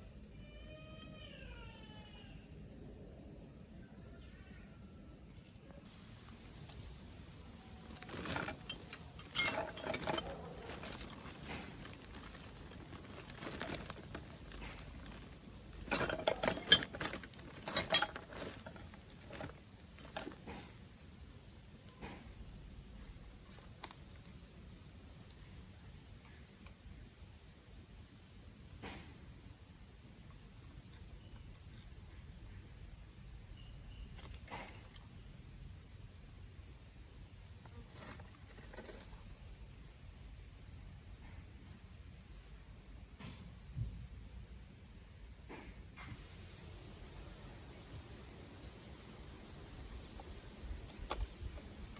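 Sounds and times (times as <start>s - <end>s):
high insect trill: 0.0s - 51.9s
metal parts and tools clinking: 7.8s - 20.7s.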